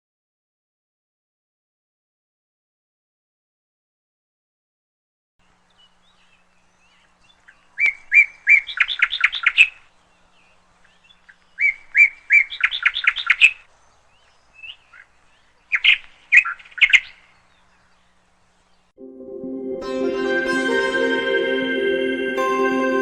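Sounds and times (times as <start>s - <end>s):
songbird singing: 5.4s - 19.0s
bird chirps: 5.5s - 18.9s.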